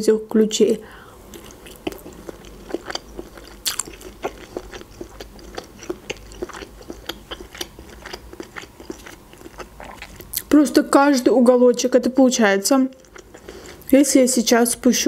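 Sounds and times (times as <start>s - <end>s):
crisp wet chewing crunches: 1.3s - 10.5s.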